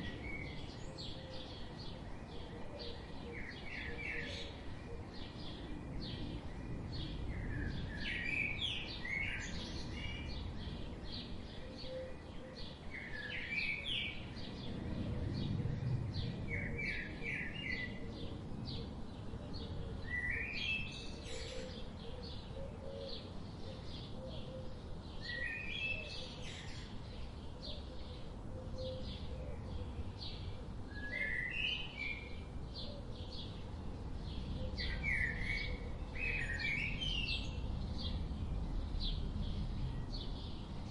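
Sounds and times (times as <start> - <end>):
low outdoor rumble: 14.2 - 20.0.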